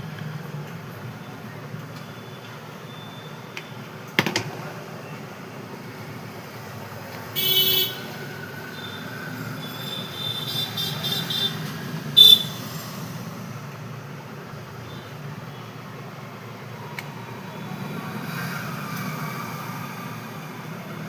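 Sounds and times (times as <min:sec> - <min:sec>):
traffic rumble: 0:00.0 - 0:21.0
vehicle horns tooting: 0:07.4 - 0:08.2, 0:09.6 - 0:12.6.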